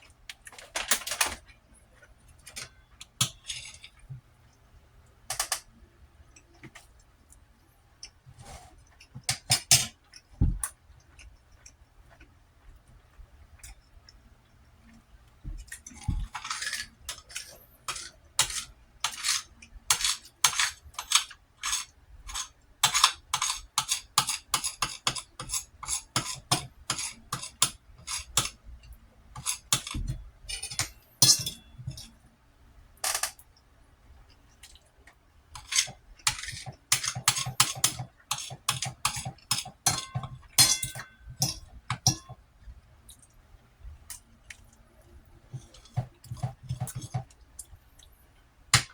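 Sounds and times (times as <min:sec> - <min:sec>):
utensil scraping a plate: 0:16.0 - 0:28.6, 0:45.5 - 0:47.3.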